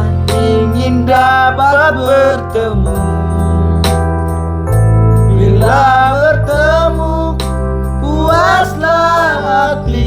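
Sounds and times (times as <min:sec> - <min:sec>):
person singing: 0:00.0 - 0:03.6, 0:05.3 - 0:07.4, 0:08.0 - 0:10.0
electronic keyboard with bass: 0:00.0 - 0:10.0.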